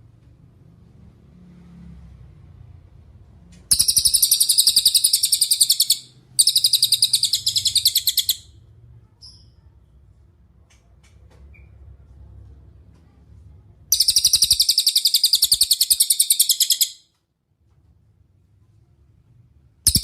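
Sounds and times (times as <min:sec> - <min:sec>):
bird high-pitched trills: 0:03.7 - 0:08.5, 0:13.9 - 0:17.0
bird short chirp: 0:13.9 - 0:17.0.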